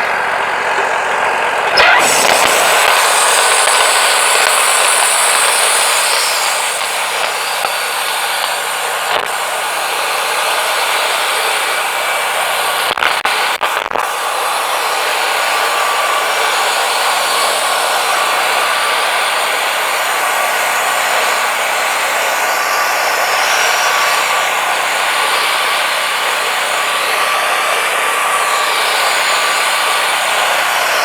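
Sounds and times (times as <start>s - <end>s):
sawmill engine running: 0.0s - 31.0s
band saw blade hissing in wood: 1.7s - 10.7s.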